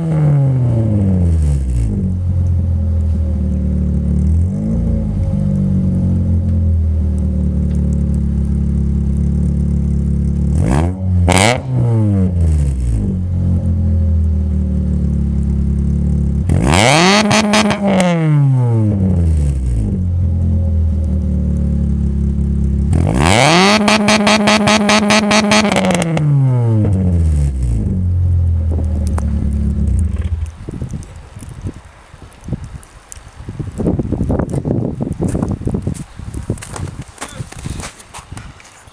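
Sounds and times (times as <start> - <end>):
car engine idling and revving: 0.0 - 31.1.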